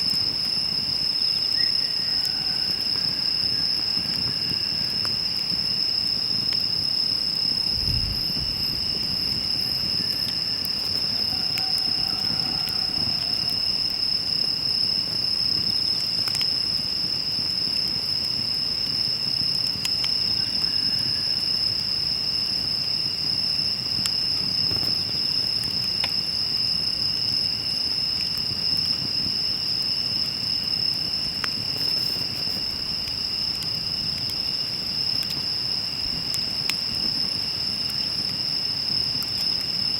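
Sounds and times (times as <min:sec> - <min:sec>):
high-pitched insect chorus: 0:00.0 - 0:39.9
campfire crackling and popping: 0:02.8 - 0:20.7, 0:21.4 - 0:39.9.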